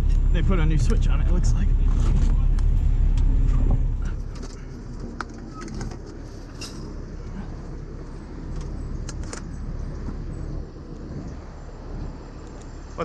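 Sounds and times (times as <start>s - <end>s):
truck engine idling: 0.0s - 13.0s
light metallic clinks: 5.3s - 7.0s.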